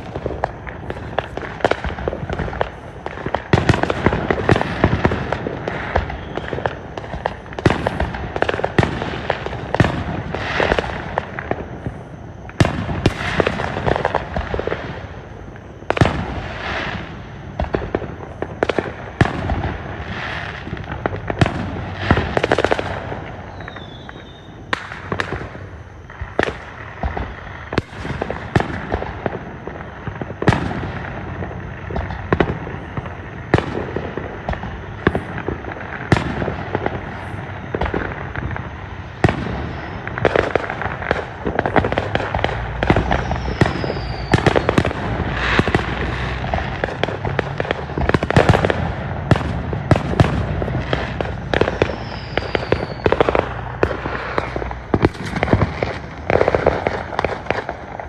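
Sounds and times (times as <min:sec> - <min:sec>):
firework bangs: 0:00.0 - 0:58.0
firework crackling: 0:00.0 - 0:58.0
falling whistles: 0:05.6 - 0:07.4, 0:23.4 - 0:24.8, 0:37.1 - 0:46.5, 0:50.7 - 0:53.7.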